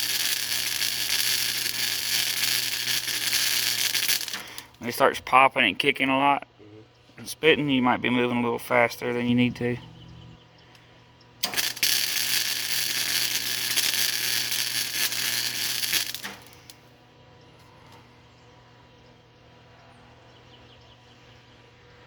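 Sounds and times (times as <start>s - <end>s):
welding arc crackling: 0.0s - 4.8s, 11.4s - 16.8s
low steady hum: 6.4s - 11.8s.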